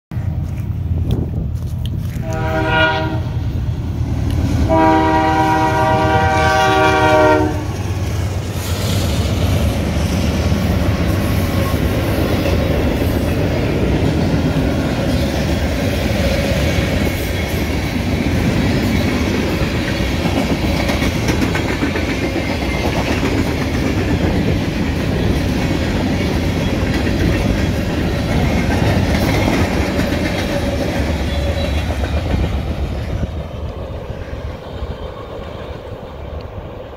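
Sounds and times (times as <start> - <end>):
freight train rumbling past: 0.1 - 36.9
locomotive horn blasts: 2.2 - 3.4, 4.7 - 7.8.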